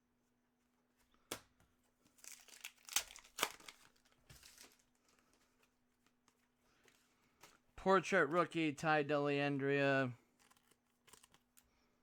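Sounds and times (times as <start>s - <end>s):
cards being handled: 1.0s - 7.7s, 10.2s - 11.7s
foil wrapper crinkling: 2.1s - 6.4s, 10.3s - 11.7s.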